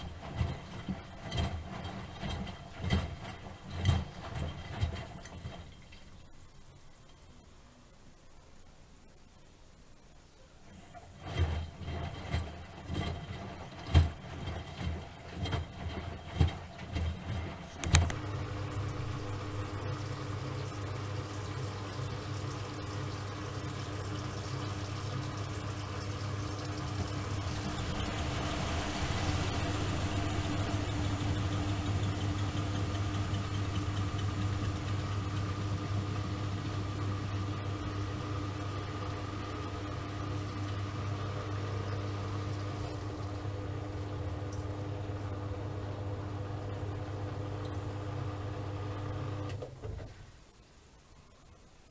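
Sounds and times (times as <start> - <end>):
washing machine drum thuds: 0.0 - 5.8, 11.3 - 43.3
washing machine motor hum: 0.0 - 6.6, 10.6 - 50.5.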